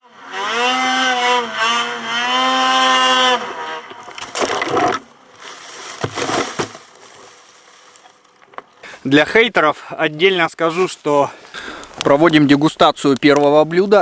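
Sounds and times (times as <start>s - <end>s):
snowmobile engine revving high: 0.0s - 4.1s.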